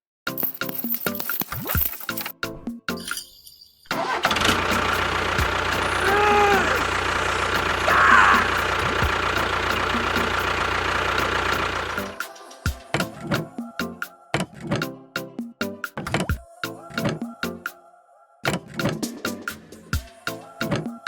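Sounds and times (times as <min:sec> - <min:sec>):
engine running: 0:04.0 - 0:12.2.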